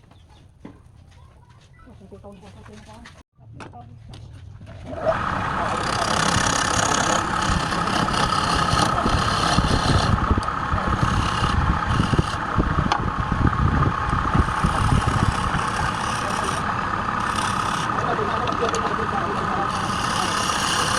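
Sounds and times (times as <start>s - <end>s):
lathe whine: 5.1s - 20.9s.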